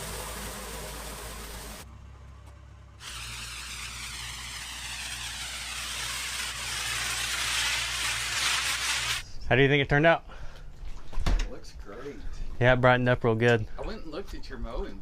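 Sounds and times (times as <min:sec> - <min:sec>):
pressure washer spray hissing: 0:00.0 - 0:01.8, 0:03.0 - 0:09.2.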